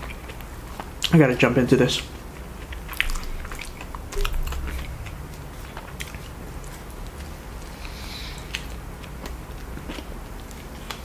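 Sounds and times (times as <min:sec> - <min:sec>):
chewing with mouth clicks: 0:02.1 - 0:05.0, 0:07.8 - 0:11.0.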